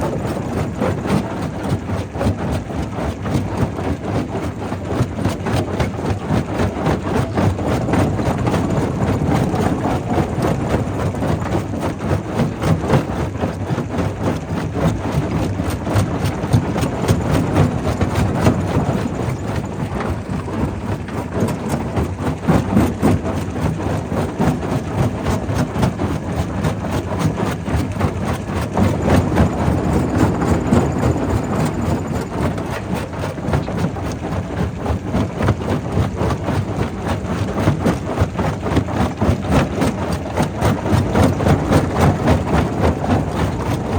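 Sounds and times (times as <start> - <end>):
rock crusher rumbling: 24.4 - 43.9.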